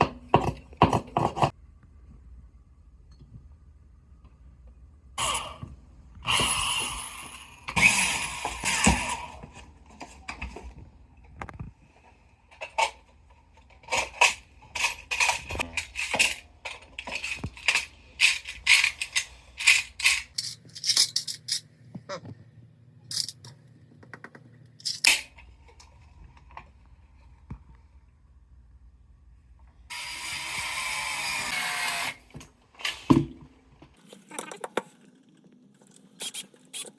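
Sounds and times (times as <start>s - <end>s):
hard objects scraping rattle: 13.7s - 21.7s
sharp clicks and clacks: 23.1s - 25.2s.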